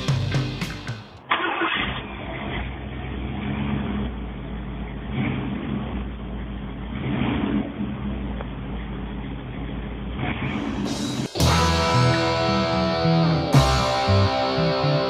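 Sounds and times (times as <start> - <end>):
music: 0.0 - 1.2, 10.8 - 15.0
car engine starting and running: 0.0 - 15.0.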